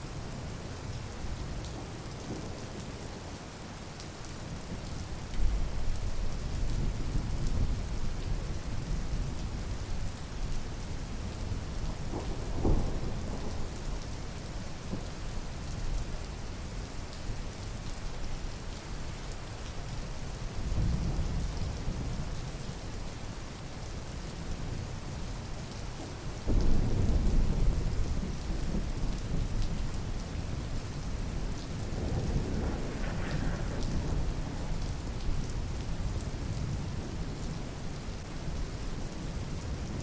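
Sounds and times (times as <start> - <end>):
steady rain falling: 0.0 - 40.0
thunder rumbling: 11.5 - 14.1, 31.3 - 36.2.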